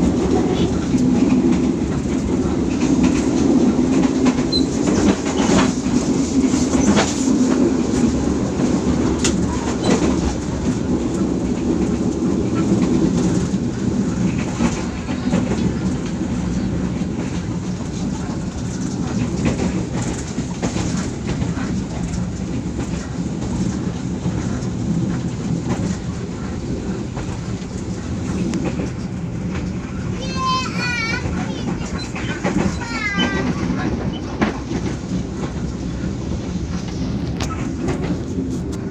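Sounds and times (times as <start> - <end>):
train rumbling on track: 0.0 - 38.9.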